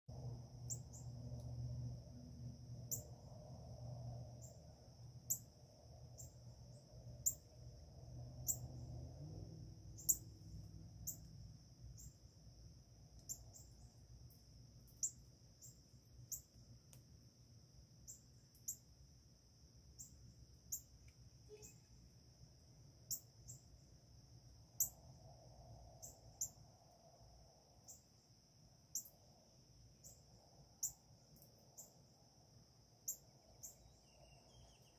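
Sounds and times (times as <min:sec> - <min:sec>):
crickets droning: 0:00.1 - 0:34.9
low rumble: 0:05.7 - 0:11.2
bird chirps: 0:08.4 - 0:08.8, 0:10.0 - 0:10.3, 0:21.5 - 0:22.0, 0:33.1 - 0:34.9.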